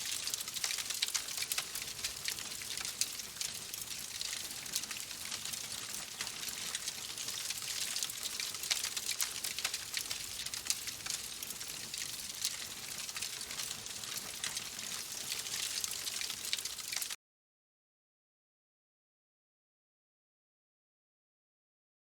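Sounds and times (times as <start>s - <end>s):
wood fire crackling: 0.0s - 17.2s.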